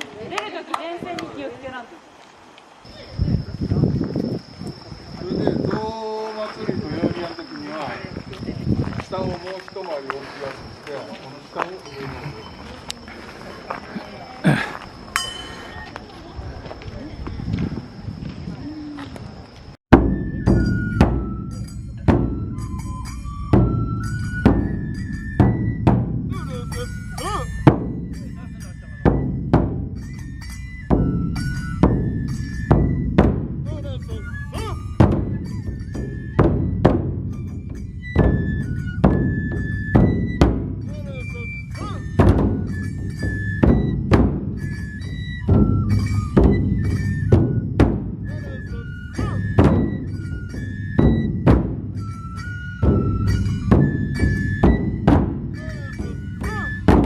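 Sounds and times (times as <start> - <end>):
barrel drums struck hard: 19.9 - 22.6, 30.9 - 33.8, 41.8 - 44.8, 51.0 - 52.0, 52.8 - 57.0
large drum strikes: 19.9 - 22.6, 52.8 - 57.0
bamboo flute melody: 20.0 - 57.0.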